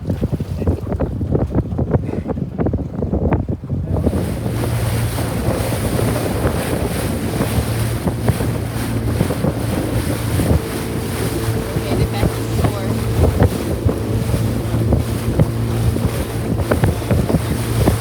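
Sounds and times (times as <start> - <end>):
boat motor hum: 0.0 - 18.0
wind buffeting microphone: 0.0 - 18.0
water rushing past: 3.9 - 18.0.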